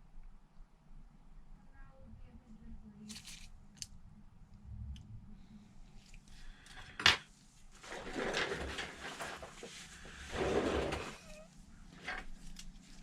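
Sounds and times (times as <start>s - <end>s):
tools scraping and rustling: 7.8s - 13.0s.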